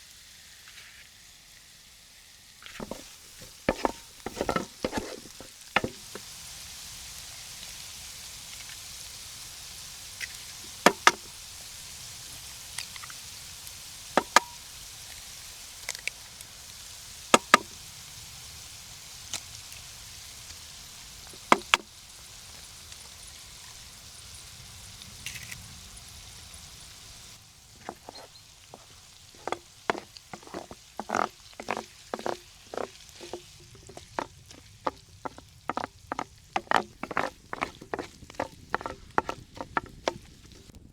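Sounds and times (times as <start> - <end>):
food sizzling in a pan: 0.0 - 40.8
knocks: 2.8 - 6.2, 10.9 - 11.3, 27.8 - 40.2.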